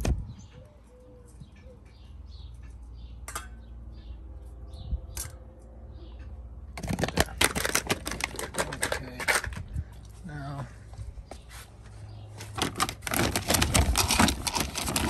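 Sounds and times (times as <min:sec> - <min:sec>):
foil pouch clicks: 0:06.8 - 0:09.4, 0:12.6 - 0:15.0.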